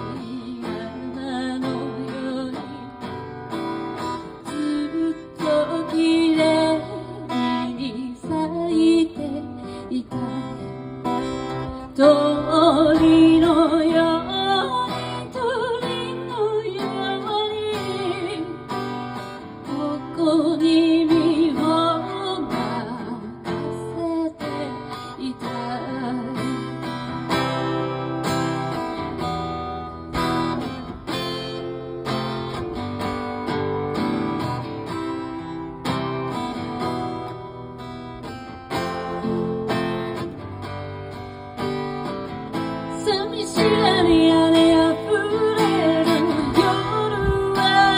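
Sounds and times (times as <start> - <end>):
person singing: 0.0 - 3.2, 4.2 - 28.0, 42.7 - 47.9
acoustic guitar strumming: 0.0 - 47.9.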